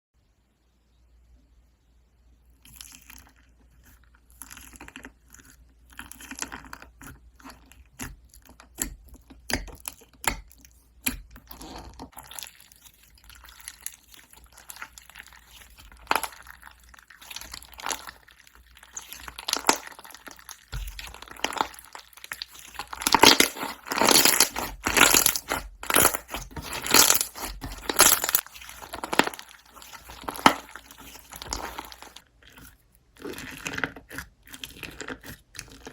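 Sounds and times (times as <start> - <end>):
crisp crunching crackles: 12.5 - 32.6.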